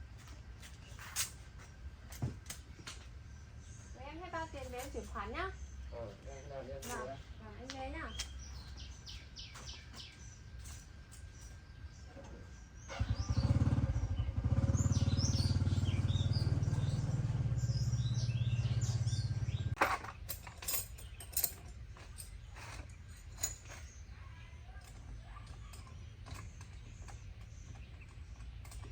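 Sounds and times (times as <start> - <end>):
birds chirping: 2.5 - 28.9
small engine running: 12.8 - 19.8.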